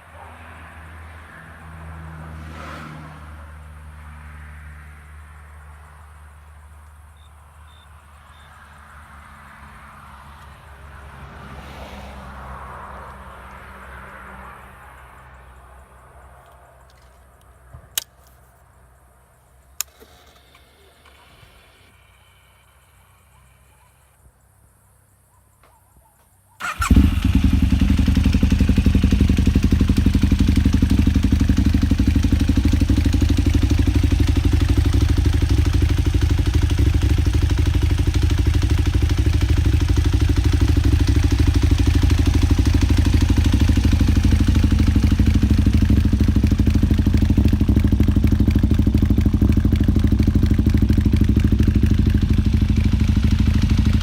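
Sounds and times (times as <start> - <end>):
motorcycle engine starting and idling: 19.7 - 23.8, 26.6 - 54.0.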